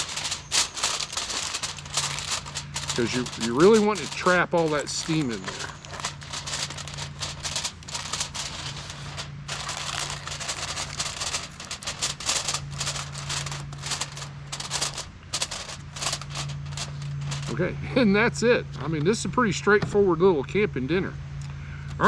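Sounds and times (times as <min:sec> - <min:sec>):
aluminium foil crinkling: 0:00.0 - 0:17.6
steady low hum: 0:00.0 - 0:22.0.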